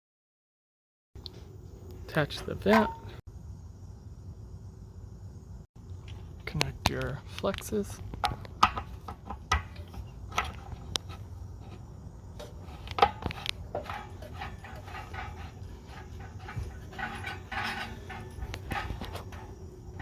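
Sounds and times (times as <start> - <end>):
metal fittings clinking: 2.1 - 3.2, 12.7 - 20.0.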